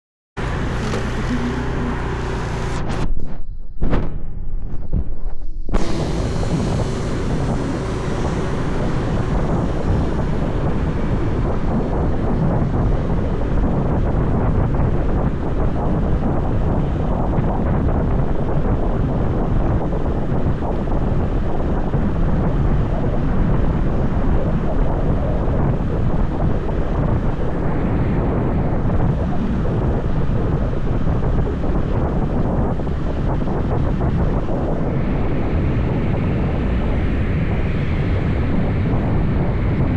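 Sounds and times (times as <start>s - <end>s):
motorbike engine running: 0.4s - 3.0s, 5.8s - 24.2s
road noise: 0.4s - 3.0s, 5.8s - 14.4s
wind buffeting microphone: 0.6s - 39.9s.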